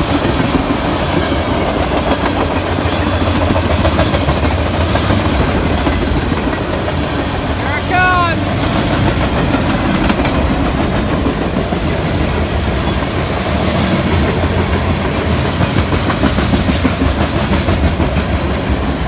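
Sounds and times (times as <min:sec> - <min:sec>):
wheels clacking over rail joints: 0:00.0 - 0:07.6, 0:08.5 - 0:19.0
train wheels rumbling on rail: 0:00.0 - 0:19.0.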